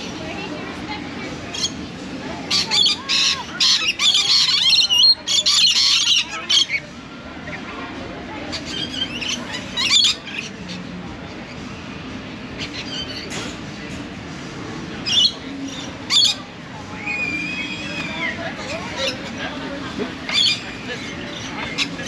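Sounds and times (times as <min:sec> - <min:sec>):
parrots screeching: 0:02.5 - 0:06.8, 0:08.6 - 0:10.5, 0:15.0 - 0:16.4, 0:17.0 - 0:18.4, 0:20.3 - 0:20.7.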